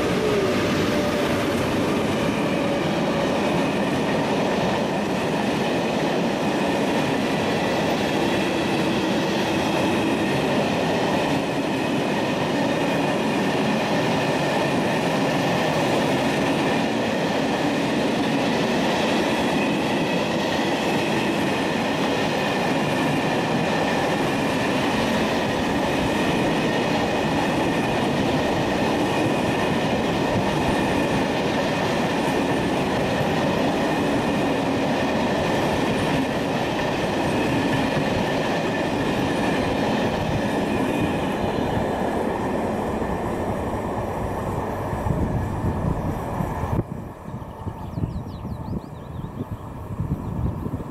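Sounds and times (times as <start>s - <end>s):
freight train wheels rattling: 0.0s - 49.2s.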